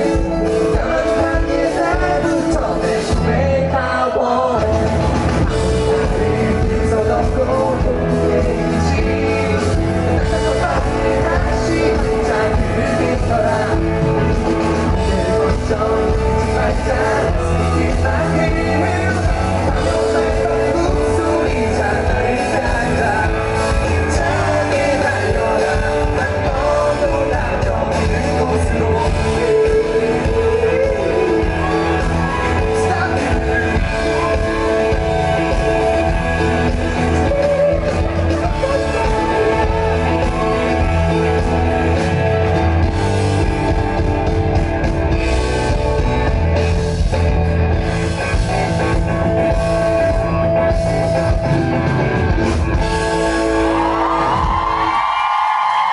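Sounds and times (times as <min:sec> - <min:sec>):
person singing: 0:00.0 - 0:44.0
pop-rock band playing: 0:00.0 - 0:55.9.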